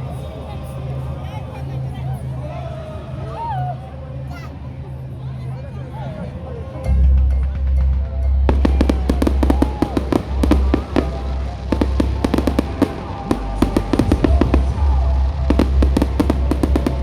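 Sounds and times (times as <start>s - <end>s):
fireworks crackling and banging: 8.5s - 17.0s.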